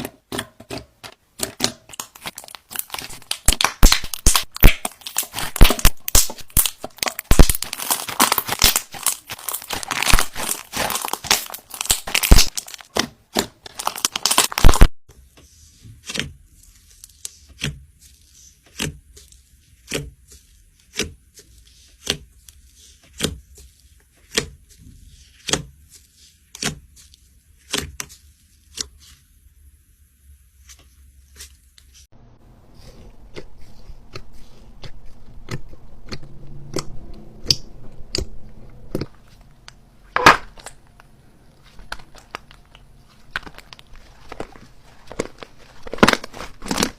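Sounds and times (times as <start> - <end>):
slime squishing: 0.0 - 29.5, 30.5 - 46.9
slime popping: 1.4 - 13.1
slime crackling and crunching: 1.4 - 14.9, 41.6 - 46.9.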